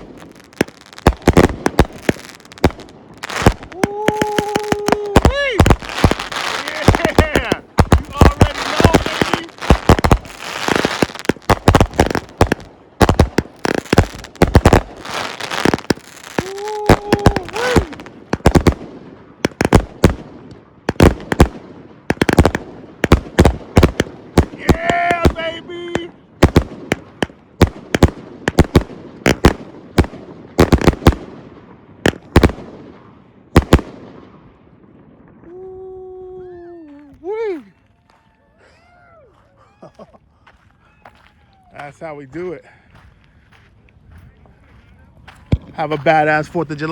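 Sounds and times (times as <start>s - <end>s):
firework crackle: 0.0s - 34.3s
fireworks firing sharp bangs: 0.0s - 35.5s
man shouting woo-wee: 3.6s - 5.8s, 6.4s - 9.5s, 16.3s - 18.1s, 24.6s - 26.1s, 35.4s - 40.2s, 40.8s - 42.6s.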